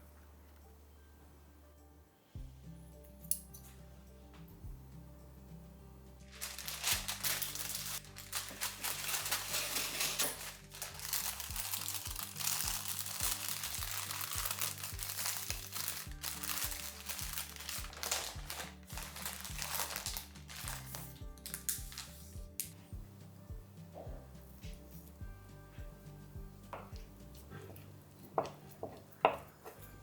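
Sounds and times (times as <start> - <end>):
background music with bass line: 2.4 - 27.8
plastic wrapping crinkling: 6.3 - 22.8.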